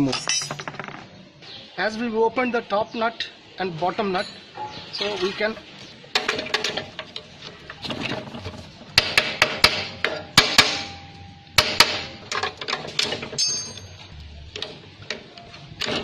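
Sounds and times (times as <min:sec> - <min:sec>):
metal tools clinking on metal: 0:00.0 - 0:01.0, 0:04.1 - 0:05.6, 0:12.3 - 0:14.1.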